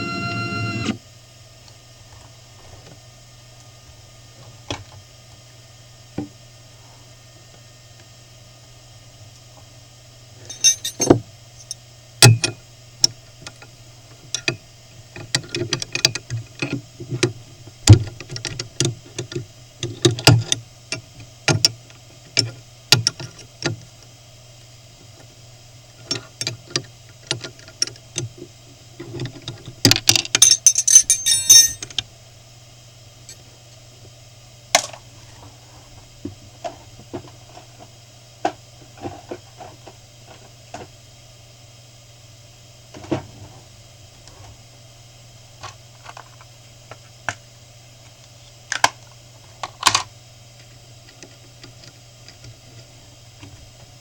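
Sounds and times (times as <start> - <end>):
mill humming and whining: 0.0 - 54.0
sharp clicks and clinks: 10.4 - 12.6, 30.2 - 32.0.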